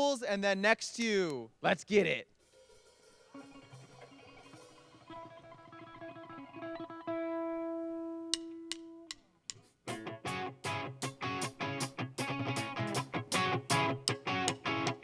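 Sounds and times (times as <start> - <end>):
electric guitar picked notes: 3.4 - 9.1, 9.9 - 15.0
loud rhythmic guitar chords: 9.9 - 15.0.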